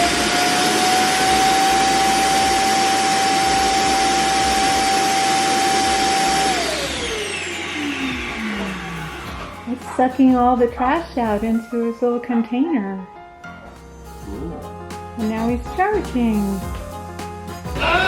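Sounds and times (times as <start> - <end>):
suction motor whining: 0.0 - 9.5.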